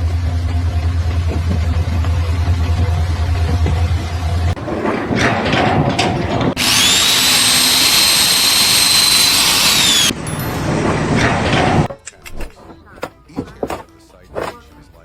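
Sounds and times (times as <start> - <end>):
high-pitched power tool whine: 6.6 - 11.8.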